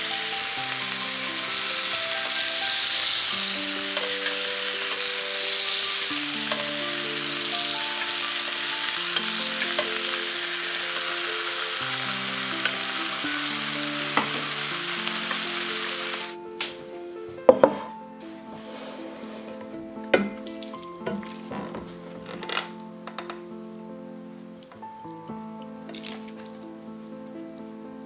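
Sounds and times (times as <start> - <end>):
chicken sizzling in butter: 0.0 - 16.4
soft background music: 0.0 - 28.0.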